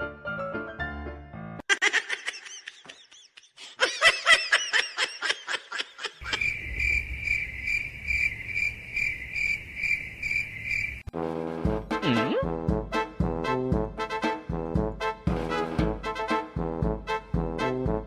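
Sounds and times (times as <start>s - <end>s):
rapid high chirping calls: 6.2s - 11.1s.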